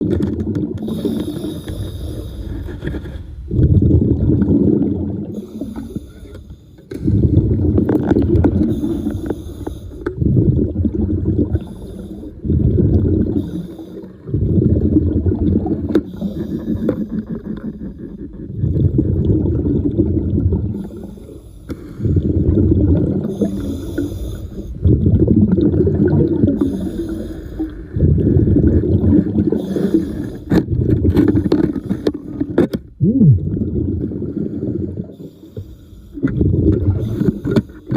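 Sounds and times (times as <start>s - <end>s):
air bubbling out underwater: 3.5s - 5.7s, 7.0s - 9.1s, 10.0s - 21.1s, 22.0s - 23.7s, 24.7s - 27.0s, 27.6s - 31.5s, 32.3s - 35.2s, 36.2s - 37.6s.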